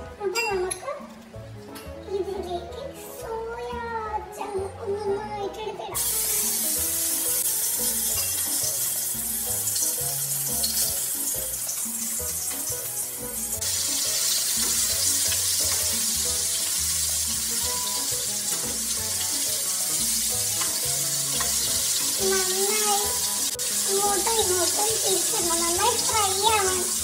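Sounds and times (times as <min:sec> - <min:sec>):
background music: 0:00.0 - 0:27.0
food sizzling in hot oil: 0:06.0 - 0:27.0.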